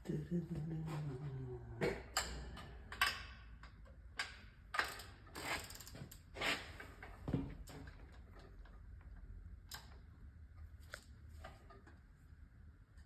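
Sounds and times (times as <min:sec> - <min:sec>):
low steady hum: 0:00.0 - 0:04.7.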